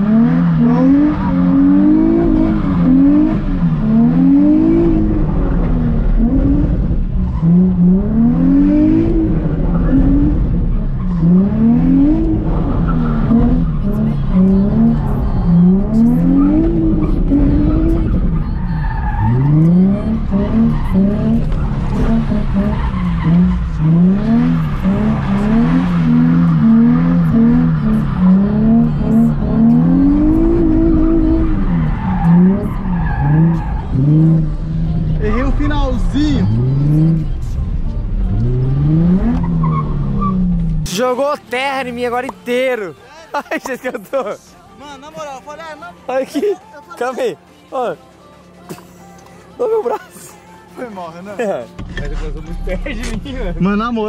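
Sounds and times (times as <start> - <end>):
car engine revving: 0.0 - 42.3
tyres skidding: 0.0 - 54.0.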